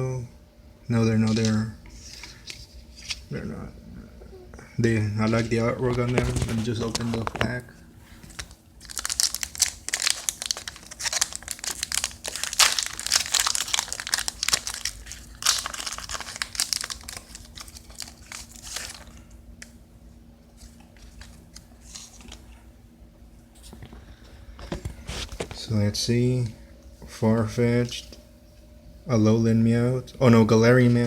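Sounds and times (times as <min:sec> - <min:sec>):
foil wrapper crinkling and tearing: 0:05.3 - 0:07.6, 0:08.3 - 0:19.3, 0:20.6 - 0:22.5.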